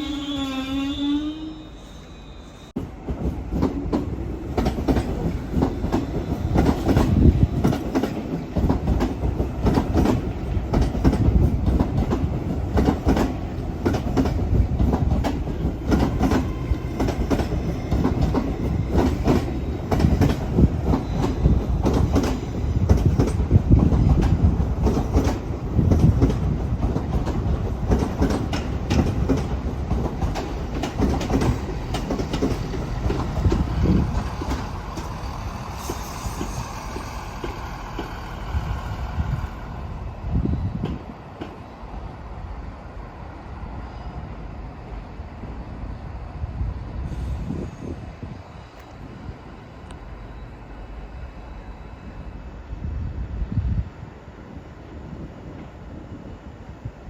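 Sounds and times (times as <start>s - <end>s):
train wheels clattering over rails: 2.8s - 39.3s.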